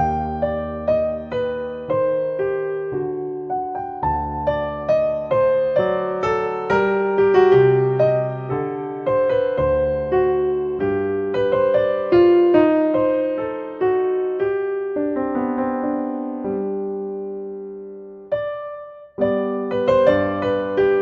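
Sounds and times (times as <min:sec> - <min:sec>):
gentle piano melody: 0:00.0 - 0:21.0.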